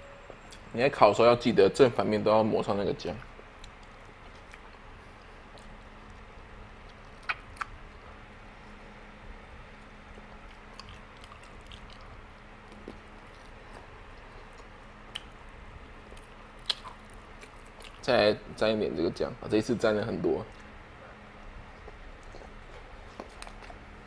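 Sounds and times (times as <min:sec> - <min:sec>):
biting and chewing ribs: 0:02.6 - 0:18.5, 0:20.4 - 0:24.0
wet mouth noises: 0:03.2 - 0:06.2, 0:06.8 - 0:07.9, 0:10.4 - 0:15.4, 0:16.2 - 0:18.1.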